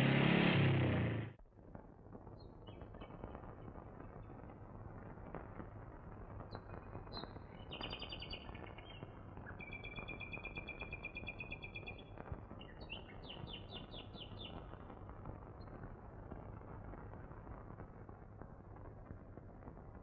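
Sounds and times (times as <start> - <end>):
bird chirps and trills: 12.6 - 14.6.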